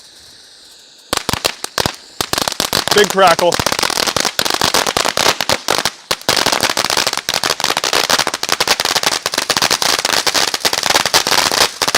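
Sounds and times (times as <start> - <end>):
firework fountain crackling: 0.0 - 11.9.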